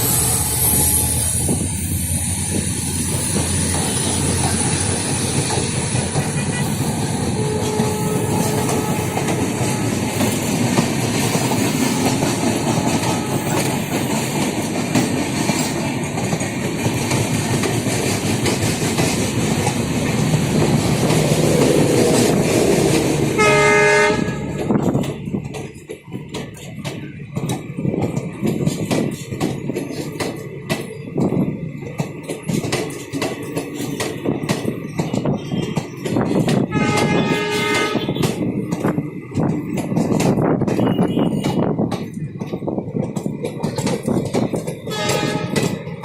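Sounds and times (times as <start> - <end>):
train wheels clattering: 0.0 - 46.0
train horn blast: 6.2 - 10.2, 12.0 - 13.9, 23.1 - 24.8, 36.7 - 38.4, 40.8 - 41.7, 44.9 - 45.8.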